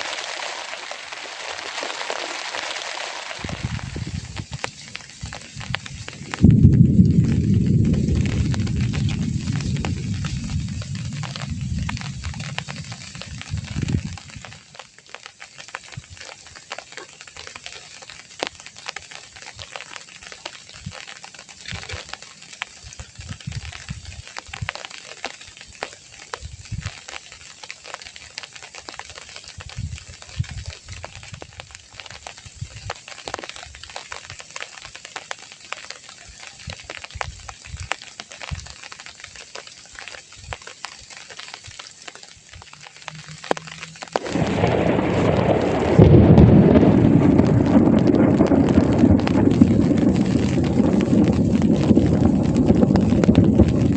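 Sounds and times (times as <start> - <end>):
rain pattering: 0.0 - 53.9
low rumble: 3.4 - 14.6, 42.6 - 53.9.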